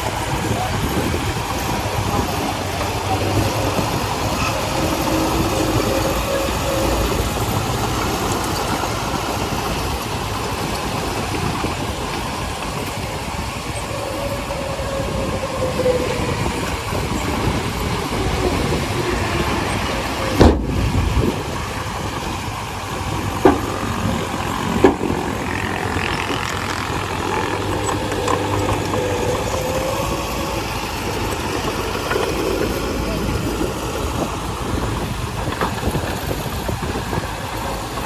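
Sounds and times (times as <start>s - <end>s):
diesel engine running: 0.0s - 38.0s
faint squealing: 0.0s - 38.0s
sharp thump: 20.4s - 21.1s.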